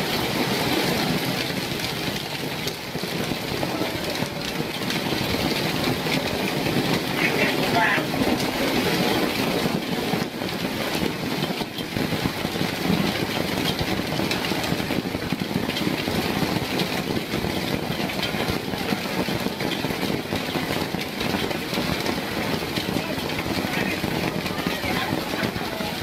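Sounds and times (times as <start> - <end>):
hailstones pelting down: 0.0 - 26.0.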